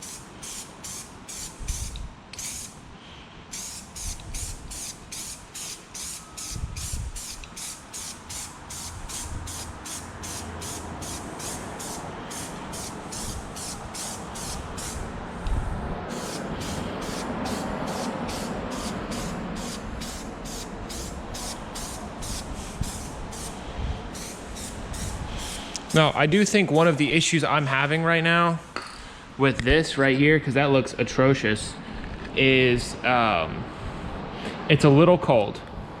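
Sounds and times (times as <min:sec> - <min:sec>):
spray can ball rattling: 0:03.6 - 0:15.0, 0:16.1 - 0:23.6, 0:24.2 - 0:26.1.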